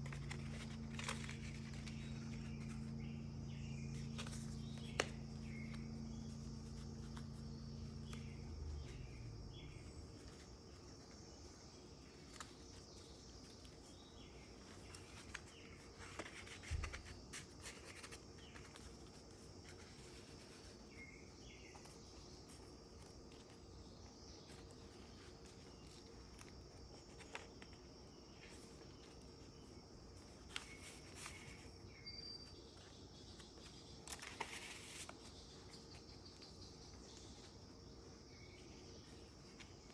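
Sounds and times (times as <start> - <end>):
low hum: 0.0 - 11.7
paper pages rustling: 0.0 - 37.7
faint high chirps: 30.5 - 33.9.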